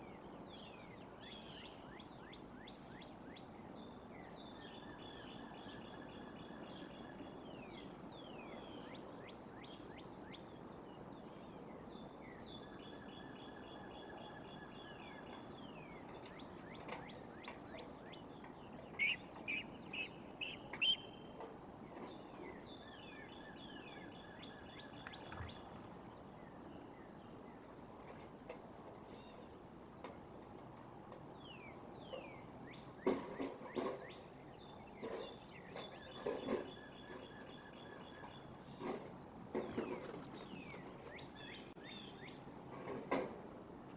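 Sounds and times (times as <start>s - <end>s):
bird song with falling chirps: 0.0s - 10.6s, 11.2s - 28.2s, 31.4s - 42.4s
steady outdoor hiss: 0.0s - 43.9s
birds calling: 12.8s - 28.2s, 31.4s - 43.0s
loud sharp bird calls: 18.9s - 21.2s.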